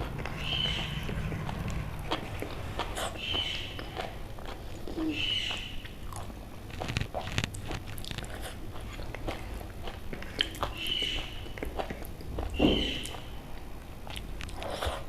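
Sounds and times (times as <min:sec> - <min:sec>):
chewing: 0:00.0 - 0:15.0
sharp clicks and crunches: 0:05.5 - 0:13.2, 0:14.1 - 0:15.0.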